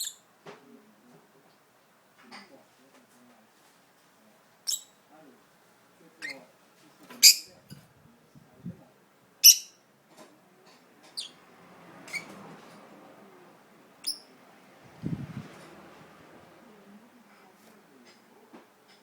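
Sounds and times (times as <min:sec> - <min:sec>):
budgerigar chirping: 0:00.0 - 0:00.2, 0:07.2 - 0:07.6, 0:09.4 - 0:09.8, 0:11.2 - 0:11.4
soft low bird chatter: 0:00.0 - 0:19.0.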